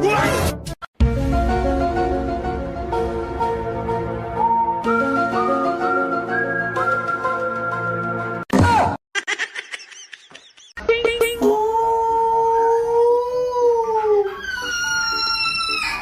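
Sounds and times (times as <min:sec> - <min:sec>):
dog yelps: 0:14.3 - 0:16.0.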